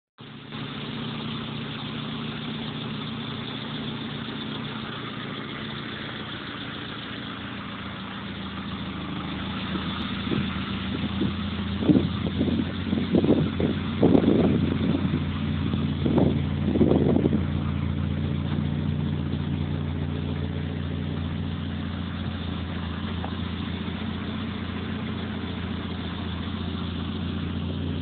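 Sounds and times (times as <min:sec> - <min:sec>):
car engine idling: 0:00.2 - 0:28.0
uneven bursts of engine sound: 0:00.2 - 0:28.0.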